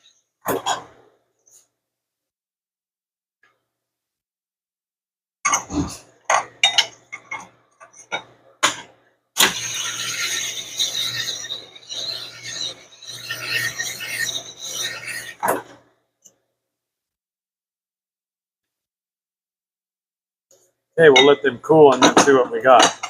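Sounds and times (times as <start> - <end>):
honing stone rasping: 9.4 - 15.8.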